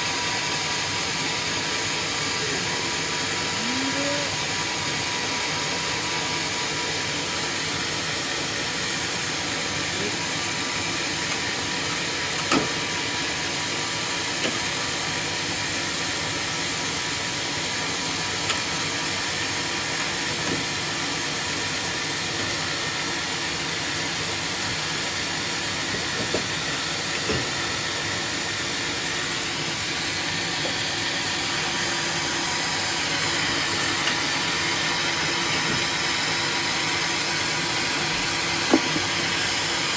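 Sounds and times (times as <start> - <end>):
sawmill running: 0.0 - 39.9.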